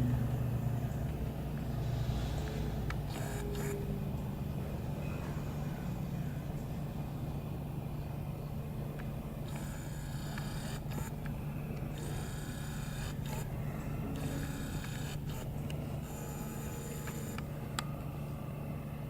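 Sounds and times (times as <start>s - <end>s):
steady low hum: 0.0s - 19.0s
camera autofocus motor whirring: 2.3s - 4.1s, 9.0s - 17.6s.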